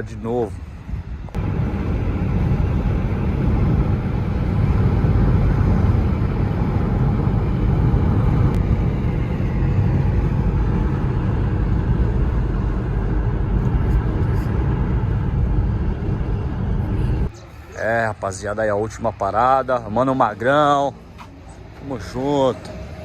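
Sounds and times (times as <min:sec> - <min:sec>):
wind noise: 0:00.0 - 0:17.5
car engine accelerating: 0:01.3 - 0:23.0.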